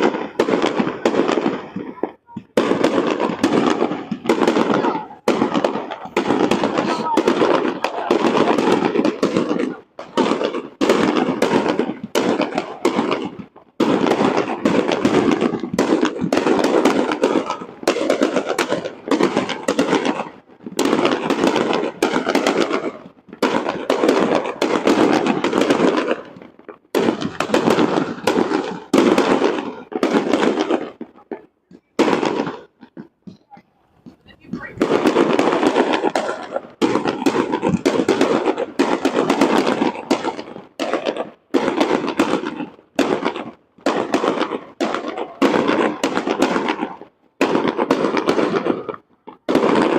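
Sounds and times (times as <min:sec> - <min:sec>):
fireworks bangs and crackling: 0:00.0 - 0:49.9.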